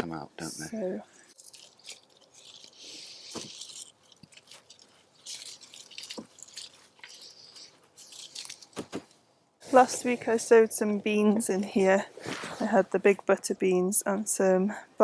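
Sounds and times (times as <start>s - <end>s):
plants and soil rustling: 1.2s - 13.2s.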